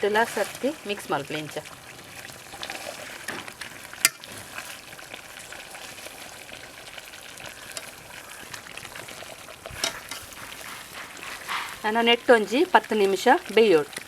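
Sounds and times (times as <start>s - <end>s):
chicken sizzling in a pan: 0.0s - 14.0s.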